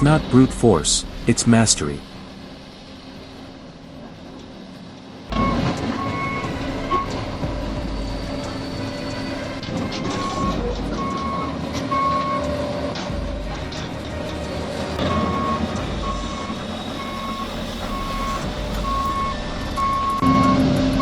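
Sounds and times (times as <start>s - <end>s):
diesel engine running: 0.0s - 21.0s
reversing alarm beeping: 5.3s - 21.0s.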